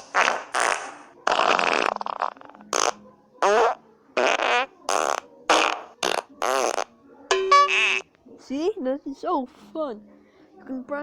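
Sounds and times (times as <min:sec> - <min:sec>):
fart sound effects: 0:00.0 - 0:08.1.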